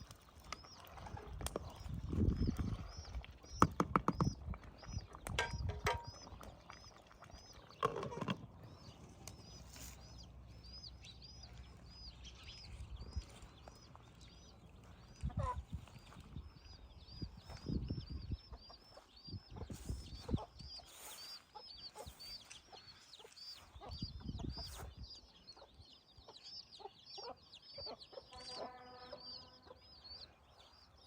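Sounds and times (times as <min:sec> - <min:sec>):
small bird chirping: 0:00.4 - 0:31.0
knocking and clattering: 0:05.4 - 0:06.1.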